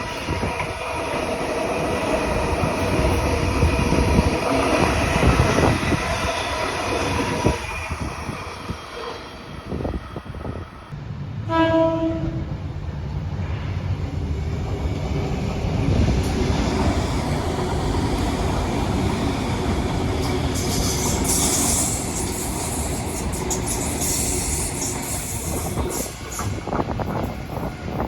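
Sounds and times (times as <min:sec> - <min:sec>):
train rumbling on track: 0:00.0 - 0:28.0
train horn blast: 0:11.4 - 0:12.5.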